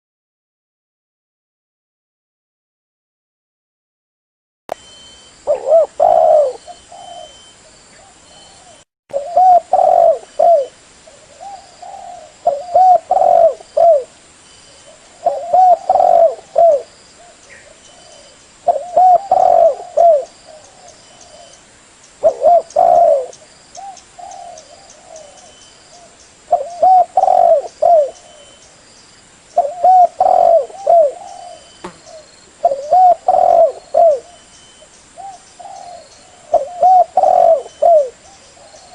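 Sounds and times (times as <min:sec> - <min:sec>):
dove cooing: 0:05.4 - 0:14.1, 0:14.8 - 0:21.6, 0:22.2 - 0:28.6, 0:29.6 - 0:34.4, 0:35.2 - 0:38.9.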